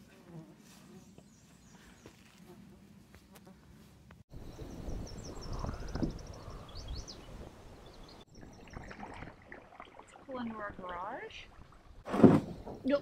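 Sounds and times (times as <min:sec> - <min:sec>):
birds singing: 0:04.4 - 0:09.4.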